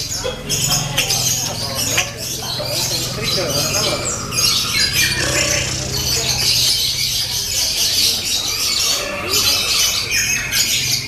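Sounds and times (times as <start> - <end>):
birds chattering and trilling: 0.0 - 11.0
steady low hum: 0.3 - 8.0.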